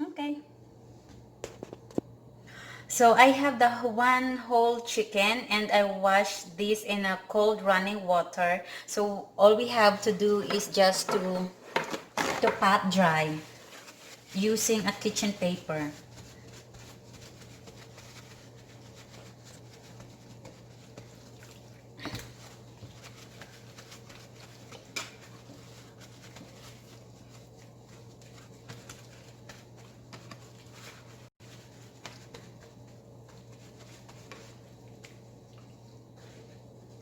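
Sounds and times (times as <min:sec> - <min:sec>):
paper towels rustling: 0:10.7 - 0:37.0.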